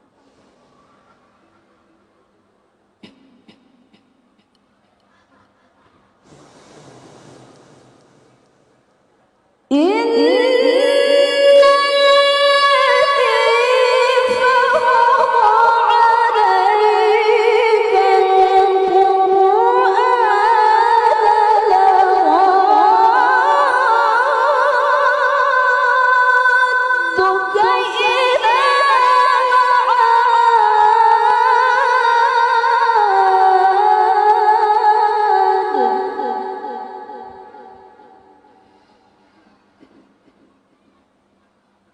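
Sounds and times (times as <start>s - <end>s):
woman reciting melismatic chant: 9.7s - 38.6s.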